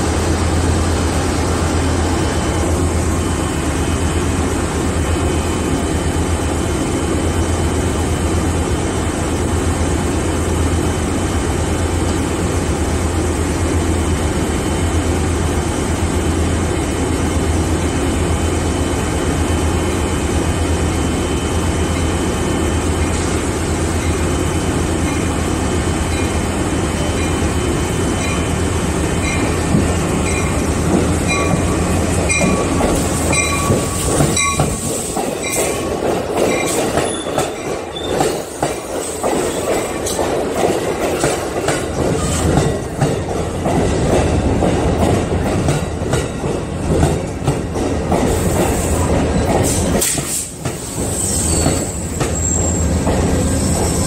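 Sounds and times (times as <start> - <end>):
locomotive humming: 0.0 - 54.0
train cars clacking over rail joints: 28.1 - 54.0
train wheels squealing: 36.5 - 40.2, 48.4 - 54.0.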